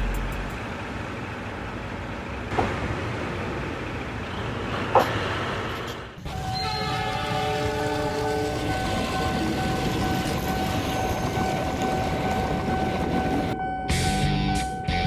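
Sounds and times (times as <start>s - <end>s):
steady vehicle noise: 0.0s - 15.0s
train horn: 6.3s - 11.1s.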